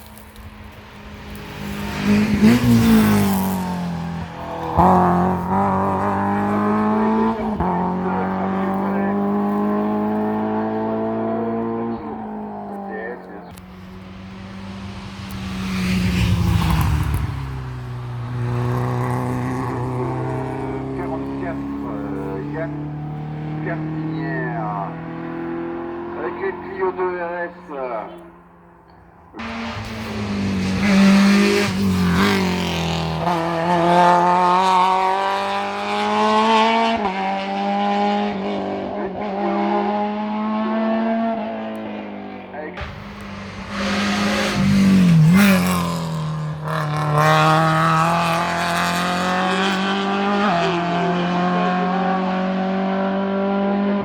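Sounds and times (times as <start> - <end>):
race car passing at speed: 0.0 - 54.0
steady engine note: 42.8 - 51.2.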